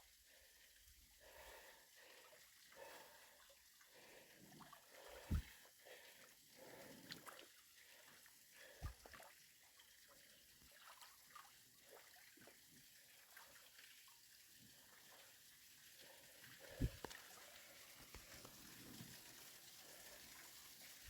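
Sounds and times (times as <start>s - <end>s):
small waterfall trickling: 0.0s - 21.0s
short low thump: 5.3s - 5.5s, 16.8s - 17.0s.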